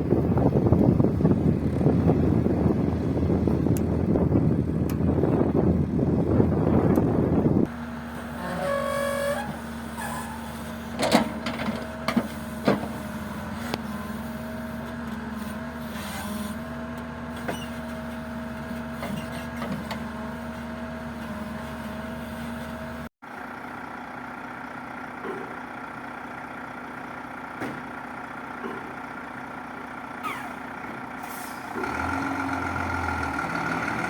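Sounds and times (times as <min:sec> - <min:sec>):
heavy vehicle engine running: 0:00.0 - 0:34.0
short horn-like tone: 0:08.3 - 0:10.4.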